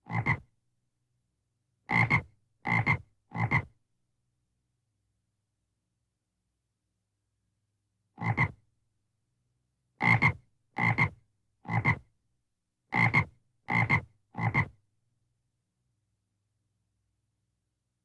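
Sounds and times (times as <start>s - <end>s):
frog croaking: 0.1s - 0.4s, 1.9s - 3.7s, 8.2s - 8.6s, 13.0s - 14.7s.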